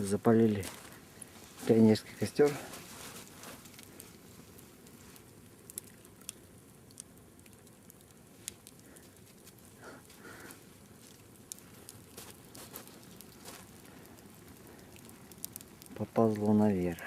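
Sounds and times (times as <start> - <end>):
sharp pops from burning logs: 0.0 - 17.0
wood fire crackling: 0.0 - 17.0.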